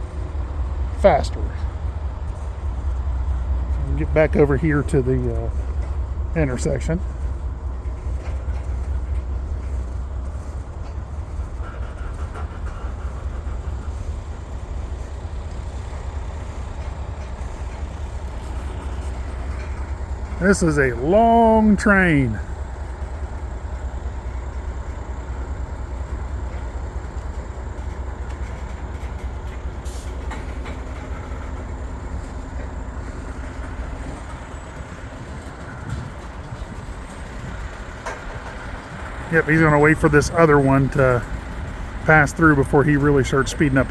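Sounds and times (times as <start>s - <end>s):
freight train rumbling past: 0.0s - 43.9s
light train clanks: 0.0s - 43.9s.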